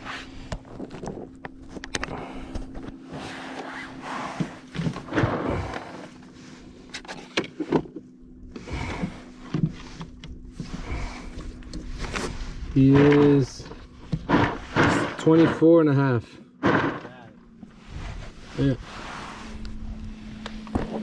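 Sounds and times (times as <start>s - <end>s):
faint hum: 0.0s - 21.0s
knocks and thuds on boat: 4.3s - 6.2s, 12.8s - 15.8s, 16.5s - 17.7s, 20.7s - 21.0s.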